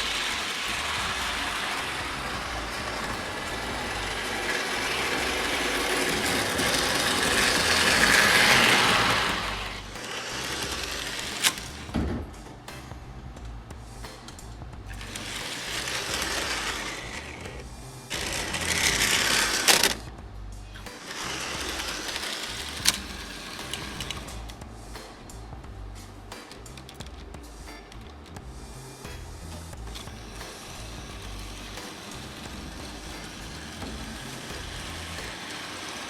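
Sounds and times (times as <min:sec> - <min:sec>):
toy train motor whirring: 0:00.0 - 0:11.9, 0:14.9 - 0:20.1, 0:20.7 - 0:25.1, 0:28.7 - 0:36.0.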